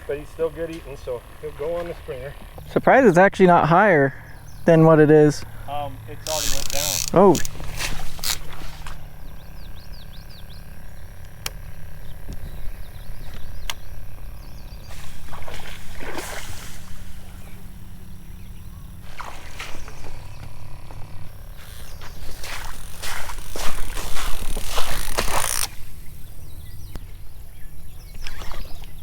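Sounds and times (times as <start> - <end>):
sharp clicks: 0.0 - 3.4, 5.4 - 14.9, 19.8 - 26.0
bird chirps: 4.0 - 7.4, 9.0 - 15.4, 17.3 - 19.0.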